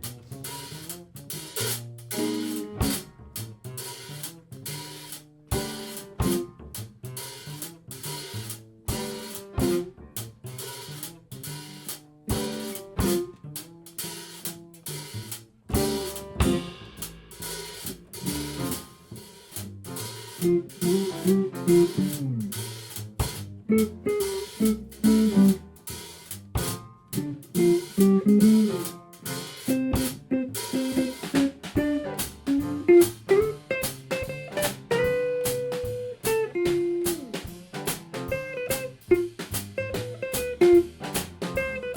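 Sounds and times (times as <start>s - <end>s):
live band playing: 0.0s - 7.4s, 8.9s - 10.0s, 11.5s - 13.4s, 15.7s - 41.9s
drum kit hi-hat and snare: 0.0s - 41.9s
guitar melody: 20.4s - 22.6s, 23.6s - 25.8s, 27.1s - 29.0s, 29.6s - 37.6s, 38.3s - 41.9s.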